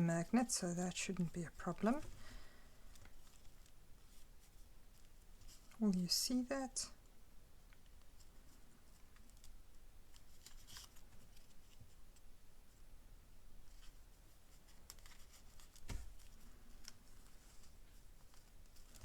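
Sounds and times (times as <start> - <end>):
paper rustling and tapping: 14.6 - 19.0.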